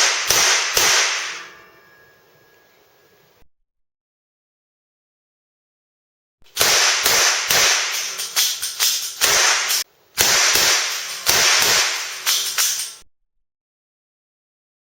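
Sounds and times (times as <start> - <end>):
revolver firing caps: 6.5 - 13.0.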